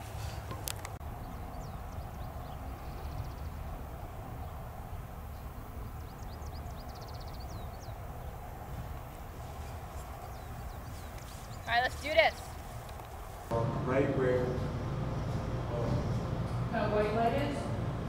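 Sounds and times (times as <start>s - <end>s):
wind rumble on microphone: 0.0s - 11.7s
small birds chirping and trilling: 0.3s - 13.2s.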